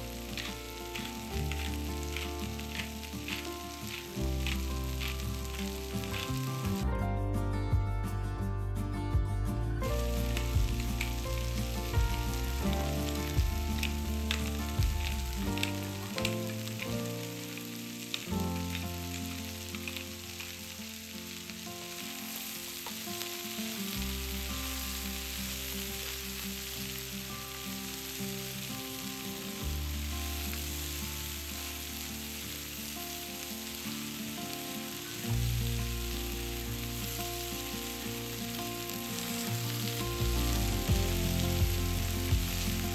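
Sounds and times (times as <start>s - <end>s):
utensil clicking against pan: 0.0s - 6.8s
food sizzling in a pan: 0.0s - 6.9s, 9.8s - 42.9s
soft background music: 0.0s - 42.9s.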